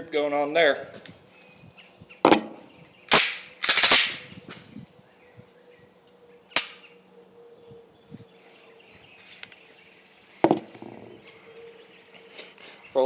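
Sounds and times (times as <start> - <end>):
pistol shots with echo: 3.1 - 4.3, 6.6 - 6.8.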